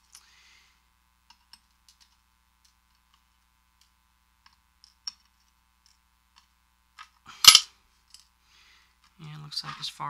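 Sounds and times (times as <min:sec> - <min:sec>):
small metal parts clicking: 0:01.3 - 0:03.2, 0:03.8 - 0:08.3.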